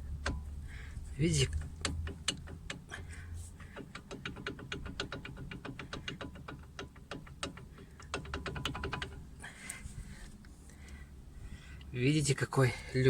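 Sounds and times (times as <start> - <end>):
brake caliper knocking: 0.0 - 9.9.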